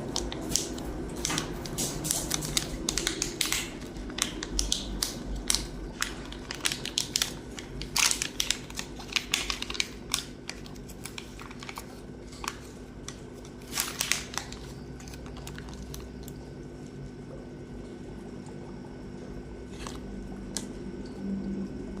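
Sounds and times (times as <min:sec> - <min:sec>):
packet crinkling and clicking: 0:00.0 - 0:16.4
steady low hum: 0:00.0 - 0:22.0.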